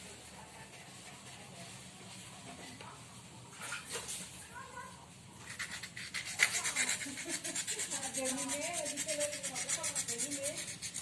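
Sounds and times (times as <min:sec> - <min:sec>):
sandpaper rasping on metal: 0:05.5 - 0:11.0.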